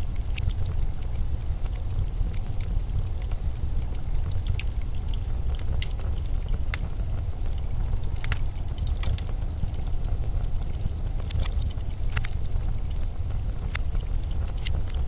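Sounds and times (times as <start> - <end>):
sharp ticks and crackles: 0.0 - 15.0.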